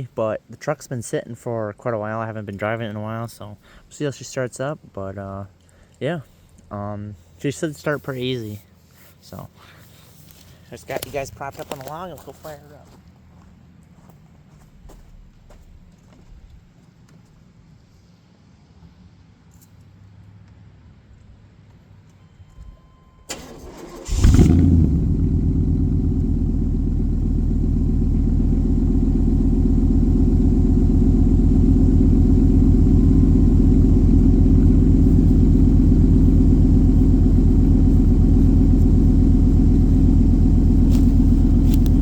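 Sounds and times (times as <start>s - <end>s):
starter motor cranking: 23.3s - 25.3s, 40.8s - 42.0s
car engine starting and idling: 23.3s - 42.0s.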